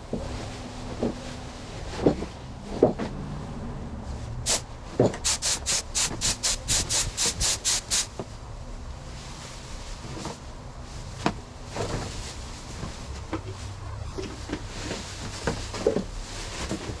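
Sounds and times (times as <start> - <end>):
spray gun hissing bursts: 5.2 - 8.0.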